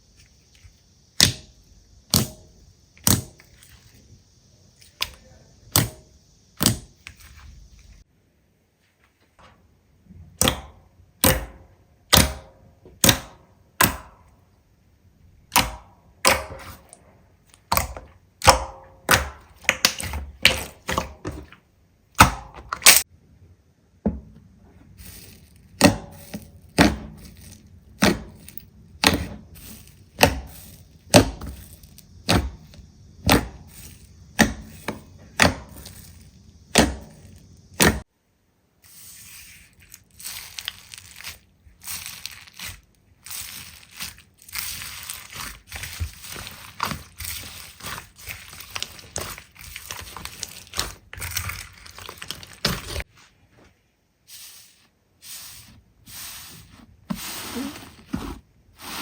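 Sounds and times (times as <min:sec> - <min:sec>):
faint steady hiss: 0:23.0 - 0:59.0.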